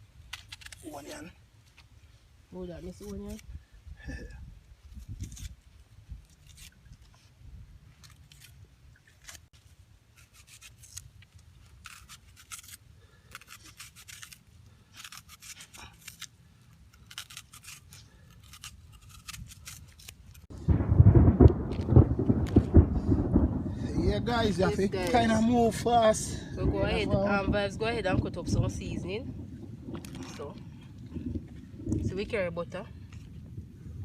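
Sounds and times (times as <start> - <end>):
loud low rumble: 20.5 - 32.3.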